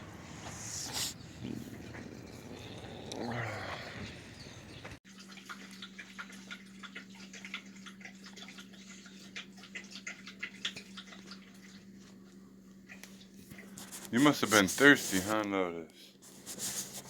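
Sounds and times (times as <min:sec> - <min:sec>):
dog lapping water: 0:04.4 - 0:12.2.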